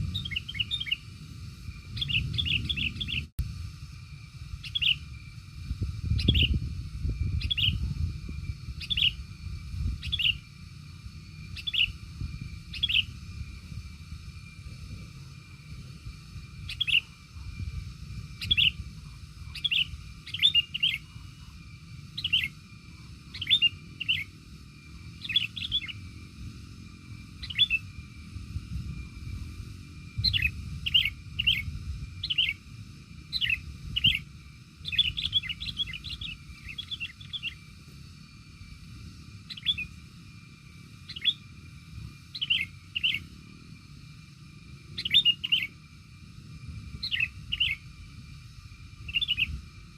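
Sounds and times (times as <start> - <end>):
bird chirping: 0.0 - 3.3, 4.6 - 5.4, 6.0 - 10.6, 11.3 - 13.4, 16.5 - 17.7, 18.3 - 26.1, 27.1 - 28.0, 30.2 - 37.8, 39.4 - 40.0, 41.0 - 41.6, 42.3 - 43.4, 44.9 - 45.9, 47.0 - 47.9, 49.0 - 49.6.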